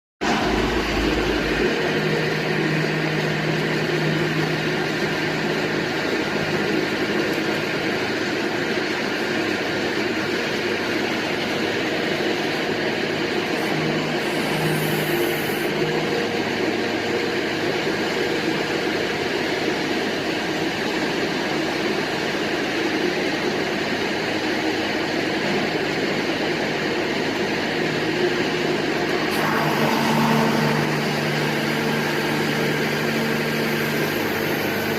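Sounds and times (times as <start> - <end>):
low hum: 0.2 - 5.2
drilling rig mechanical drone: 0.2 - 22.4, 28.4 - 34.9.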